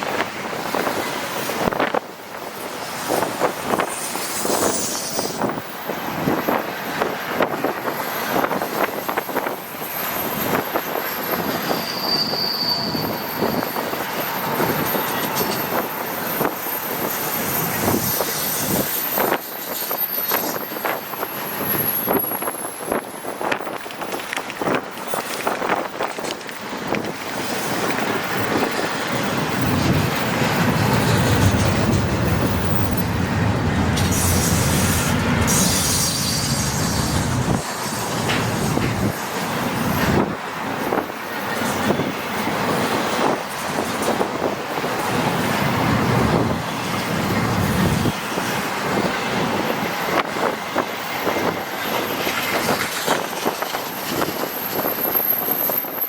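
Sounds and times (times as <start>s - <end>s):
heavy low train rumble: 0.0s - 56.0s
train wheel squeal: 2.7s - 23.8s, 27.4s - 44.3s, 44.9s - 56.0s
train wheels clicking over rails: 13.6s - 56.0s.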